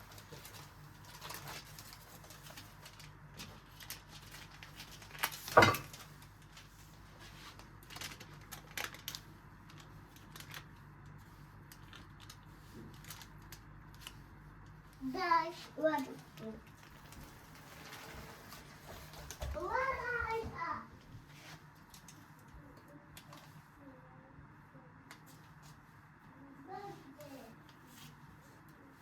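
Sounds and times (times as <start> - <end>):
kitchen items clicking and tapping: 5.3 - 6.2.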